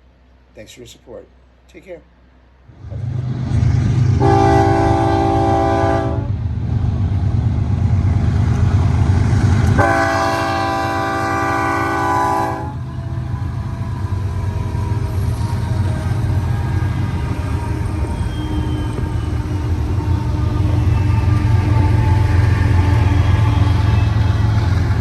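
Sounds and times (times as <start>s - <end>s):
diesel locomotive rumble: 0.0s - 25.0s
locomotive air horn blasts: 4.2s - 6.3s, 9.8s - 14.6s.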